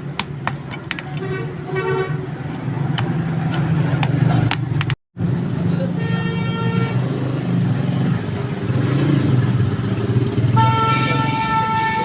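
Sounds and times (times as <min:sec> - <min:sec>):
vehicle engines rumbling: 0:00.0 - 0:12.0
vehicle horn: 0:01.2 - 0:02.3, 0:10.5 - 0:12.0.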